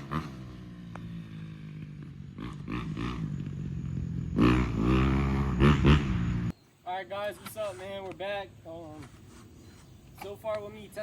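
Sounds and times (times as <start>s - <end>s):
dirt bike engine revving: 0.0s - 6.5s.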